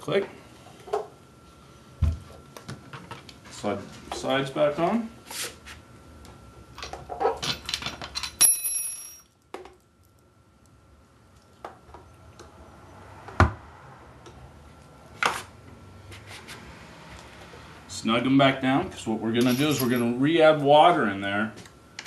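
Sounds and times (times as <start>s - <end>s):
ringing clink: 8.4s - 9.3s.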